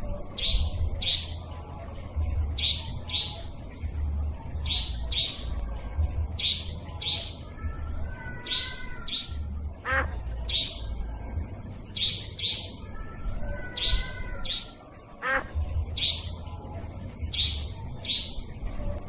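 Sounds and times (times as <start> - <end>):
low steady hum: 0.0 - 19.0
nightjar calls: 0.3 - 1.5, 2.6 - 3.6, 4.6 - 5.6, 6.4 - 11.0, 11.9 - 16.5, 17.3 - 18.6.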